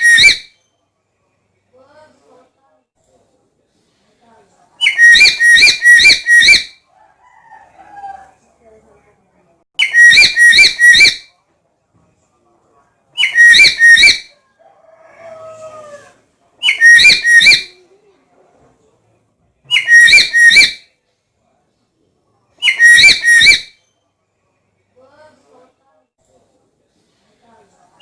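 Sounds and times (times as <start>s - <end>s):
parrot shrill whistled calls: 0.0s - 0.6s, 4.8s - 6.8s, 9.8s - 11.3s, 13.2s - 14.3s, 16.6s - 17.7s, 19.7s - 20.8s, 22.6s - 23.8s.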